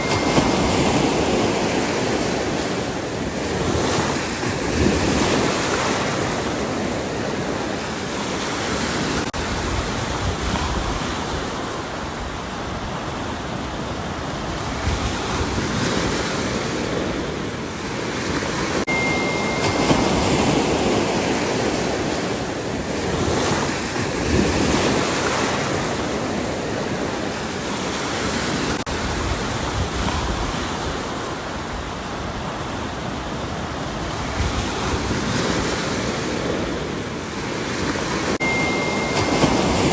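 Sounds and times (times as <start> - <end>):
high steady tone: 0.0 - 3.1, 18.9 - 22.1, 38.4 - 39.9
ocean waves breaking on shore: 0.0 - 39.9.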